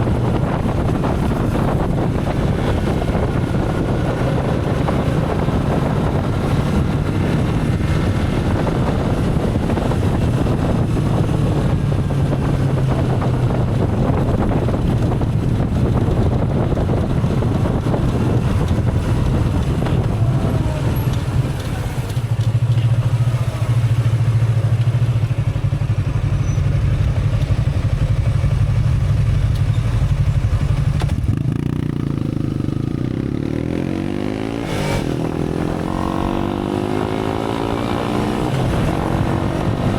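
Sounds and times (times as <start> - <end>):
wind rushing: 0.0 - 22.4, 31.3 - 39.9
motorcycle engine running: 0.0 - 39.9.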